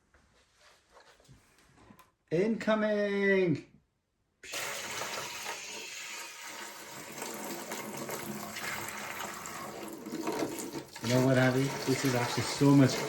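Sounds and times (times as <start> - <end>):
water pouring into container: 4.4 - 13.0.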